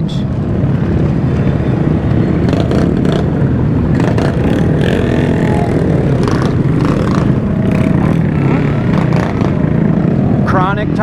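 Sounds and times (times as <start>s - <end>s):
motorcycle engines and road rumble: 0.0s - 11.0s.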